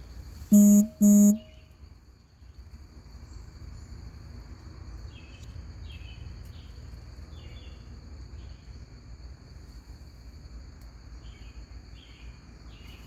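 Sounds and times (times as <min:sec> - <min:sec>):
short chirping calls: 0:00.5 - 0:01.4.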